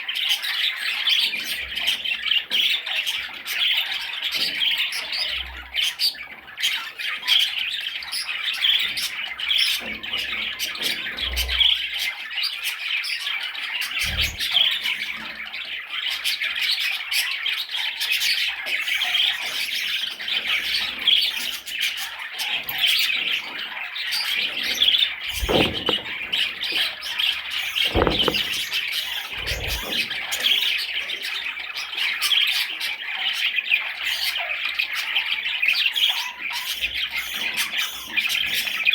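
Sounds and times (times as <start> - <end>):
short low thuds: 25.4 - 26.3, 27.9 - 28.6.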